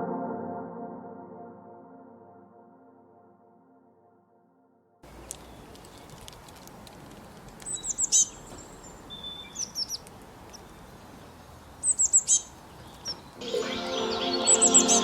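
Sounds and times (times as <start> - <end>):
small songbirds chirping: 5.0 - 15.0
steady outdoor hiss: 5.0 - 15.0.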